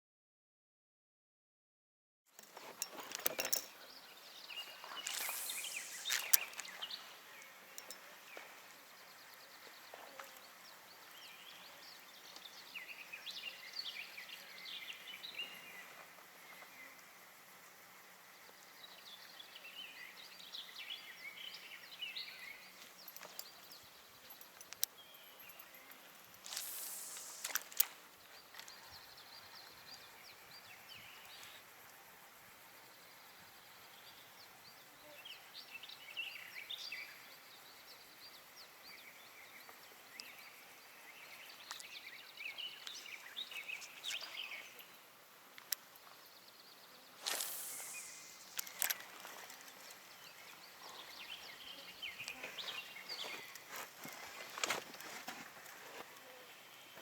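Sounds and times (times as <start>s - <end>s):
rustle with sharp click: 2.4s - 8.4s, 25.9s - 28.8s, 47.2s - 50.4s
small birds chirping: 2.6s - 57.0s.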